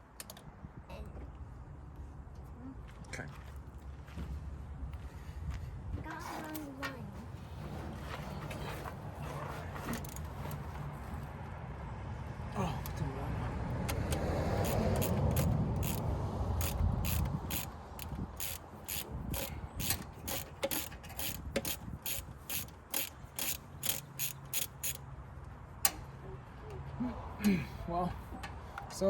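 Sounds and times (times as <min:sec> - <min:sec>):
ratchet wrench clicking: 0:13.8 - 0:25.1.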